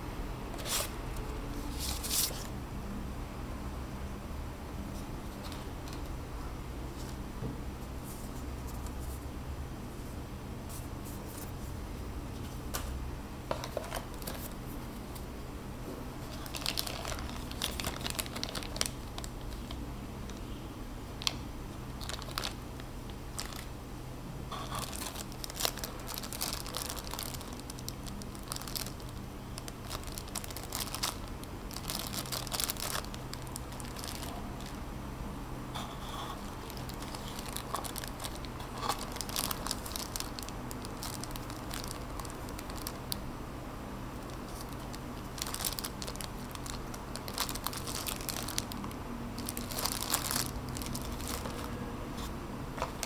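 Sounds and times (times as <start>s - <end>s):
packaging crinkling and tearing: 16.2s - 20.4s, 22.0s - 23.7s, 24.5s - 34.8s, 36.4s - 43.2s, 44.2s - 51.8s.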